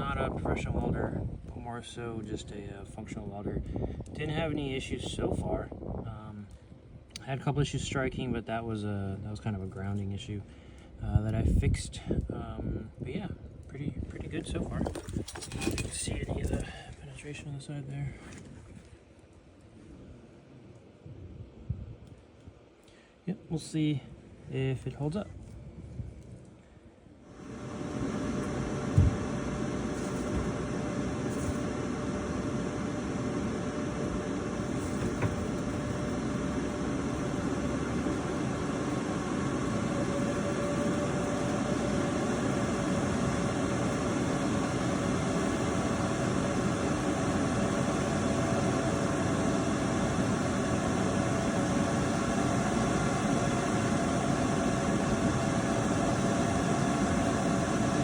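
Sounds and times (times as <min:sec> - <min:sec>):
faint rising hum: 0:22.8 - 0:58.0
arc welder crackling: 0:27.3 - 0:58.0.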